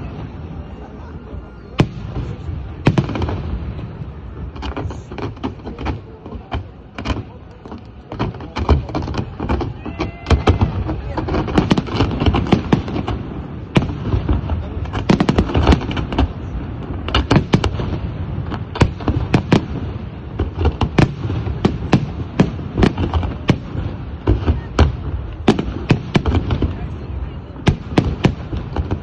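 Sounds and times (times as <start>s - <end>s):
fireworks bangs: 0.0s - 29.0s.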